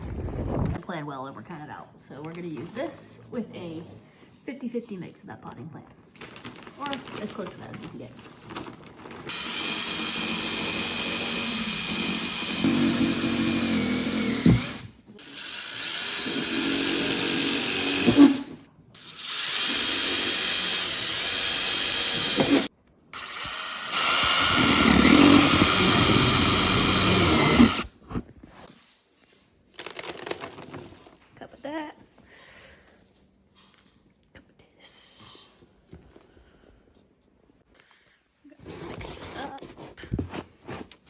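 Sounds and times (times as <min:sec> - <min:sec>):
power tool motor running: 0:09.3 - 0:27.9.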